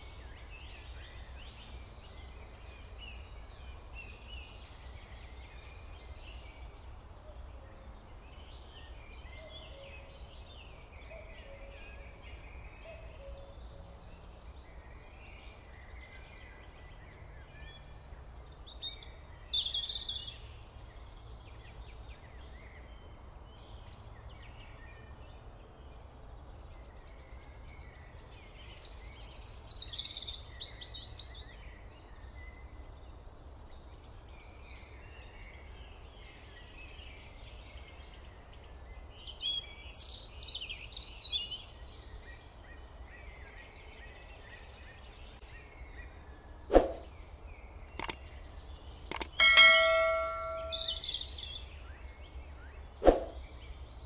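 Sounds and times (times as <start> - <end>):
small birds chirping: 25.2 - 51.8.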